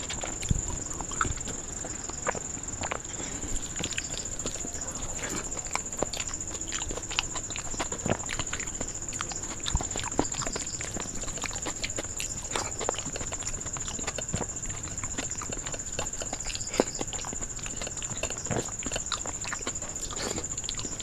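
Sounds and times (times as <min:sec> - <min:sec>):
chewing and lip-smacking: 0:00.0 - 0:21.0.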